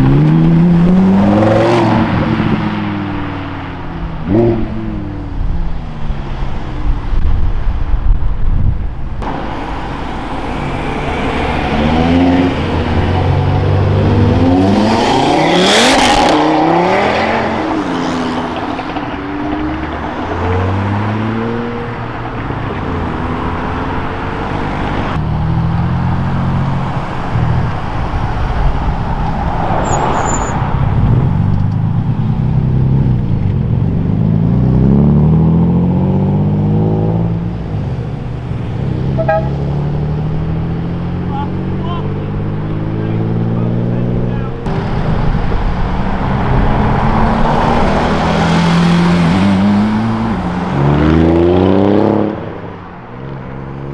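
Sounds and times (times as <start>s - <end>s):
car engines revving: 0.0s - 8.3s, 8.9s - 53.9s.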